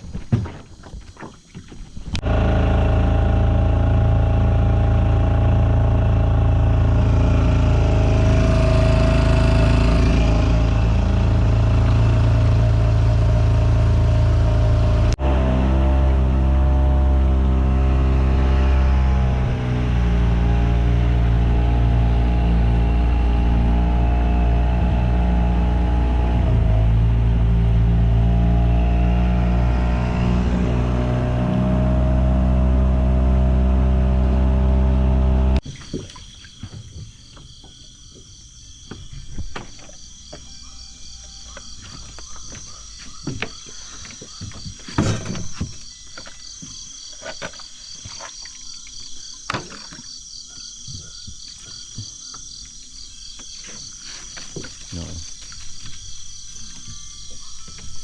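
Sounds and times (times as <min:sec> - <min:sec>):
engine running: 0:02.1 - 0:35.6
frogs: 0:35.6 - 0:58.0
night insects chirring: 0:35.6 - 0:58.0.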